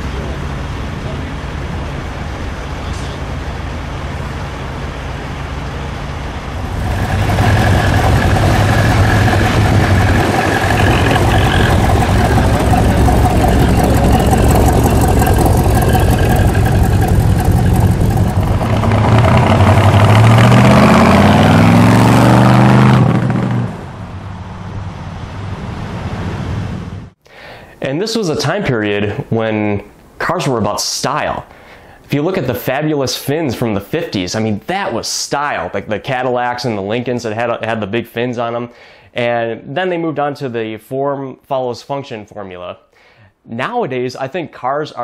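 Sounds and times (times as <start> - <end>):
car engine idling and revving: 0.1 - 27.2.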